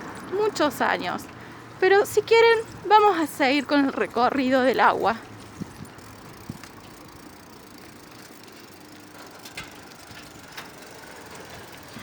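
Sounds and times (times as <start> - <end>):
bicycle freewheel ratcheting: 4.9 - 12.0.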